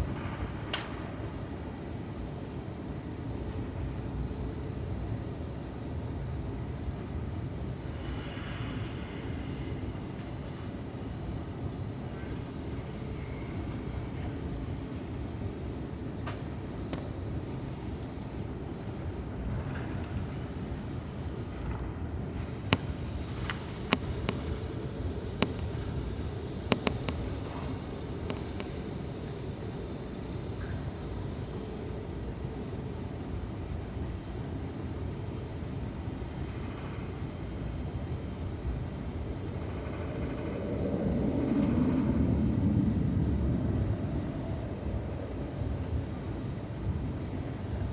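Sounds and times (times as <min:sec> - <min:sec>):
airplane cabin rumble: 0:00.0 - 0:47.9
sharp clicks: 0:21.5 - 0:28.9.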